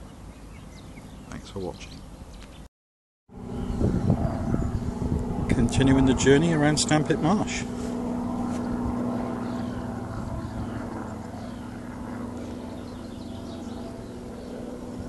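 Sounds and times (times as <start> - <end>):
distant engine droning: 3.3 - 15.0.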